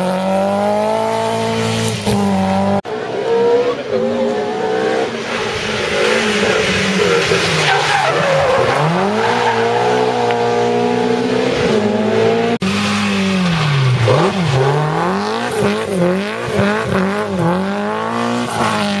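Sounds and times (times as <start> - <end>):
rally car engines revving: 0.0 - 19.0
tyres squealing: 6.0 - 10.2.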